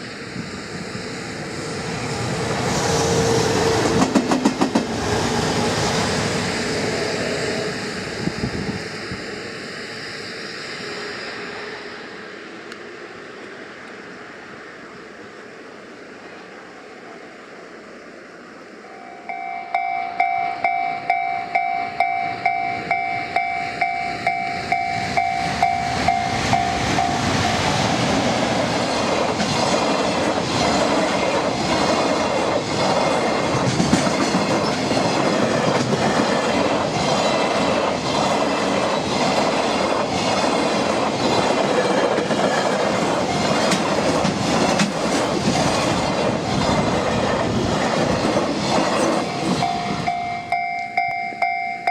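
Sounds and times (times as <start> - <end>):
electric train rumbling past: 0.0 - 51.9
warning bell ringing in pulses: 18.9 - 27.2, 49.6 - 51.9.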